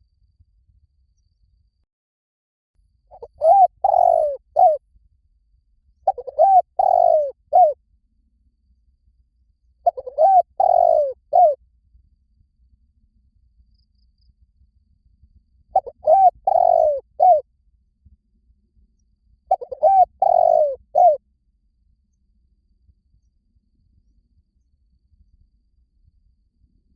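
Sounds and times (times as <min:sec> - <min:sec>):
dove cooing: 0:03.2 - 0:04.8, 0:06.1 - 0:07.8, 0:09.9 - 0:11.6, 0:15.8 - 0:17.4, 0:19.5 - 0:21.2.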